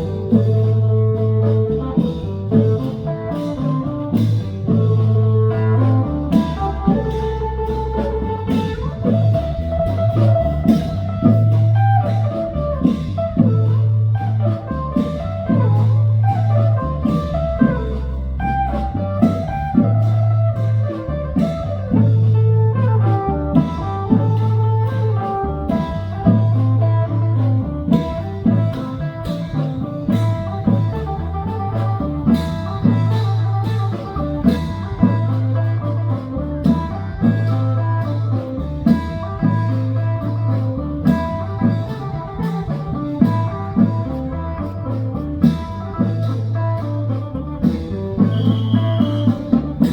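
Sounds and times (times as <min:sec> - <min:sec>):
band music: 0:00.0 - 0:49.9
bass line: 0:00.0 - 0:49.9
drum kit beat: 0:00.0 - 0:49.9
plucked-string melody: 0:22.7 - 0:48.3.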